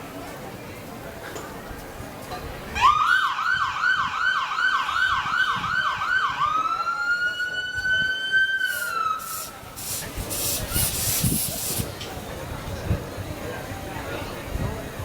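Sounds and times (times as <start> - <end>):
emergency vehicle siren: 2.8 - 9.6.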